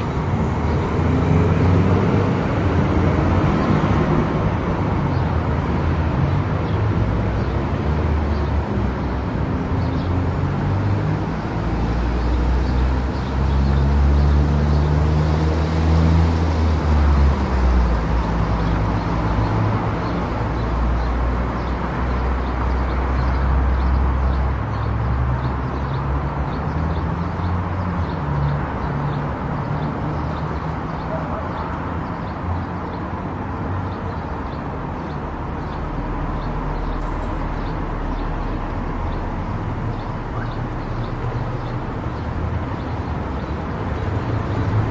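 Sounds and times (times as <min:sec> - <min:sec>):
car road and engine noise: 0:00.0 - 0:44.9.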